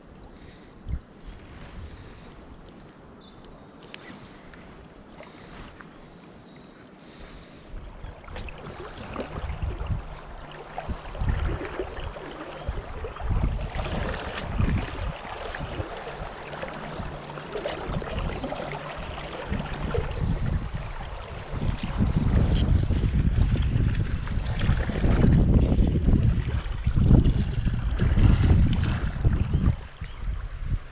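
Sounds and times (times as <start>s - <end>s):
wind rumble on microphone: 0.0s - 6.2s, 7.1s - 30.9s
river water rushing: 7.9s - 21.6s.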